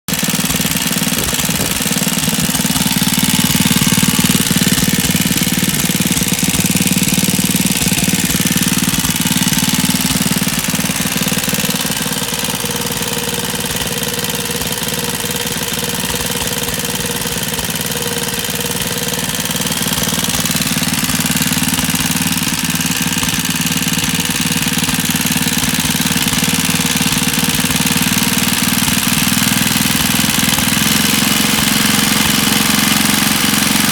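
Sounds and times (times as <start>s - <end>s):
two-stroke engine running: 0.0s - 33.9s.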